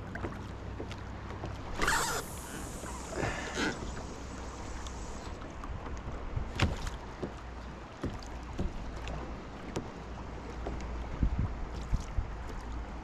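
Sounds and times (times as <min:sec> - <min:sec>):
water slapping against hull: 0:00.0 - 0:13.0
wind rumbling on microphone: 0:01.6 - 0:07.4, 0:10.9 - 0:13.0.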